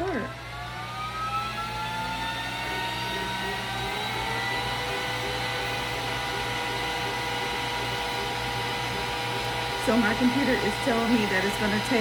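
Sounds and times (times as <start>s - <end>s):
laser cutter fans whirring: 0.0s - 12.0s.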